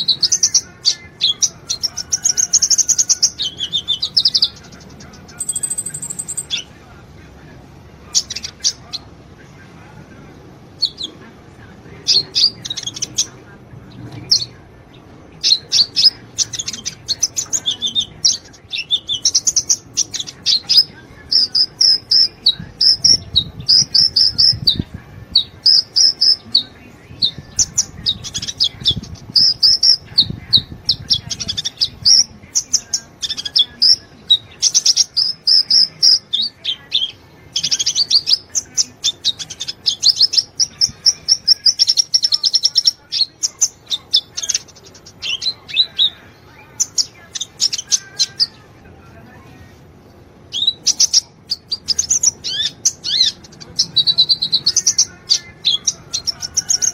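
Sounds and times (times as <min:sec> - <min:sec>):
bird singing high twitters: 0:00.0 - 0:06.8, 0:10.7 - 0:11.2, 0:12.0 - 0:48.6, 0:50.5 - 0:56.9.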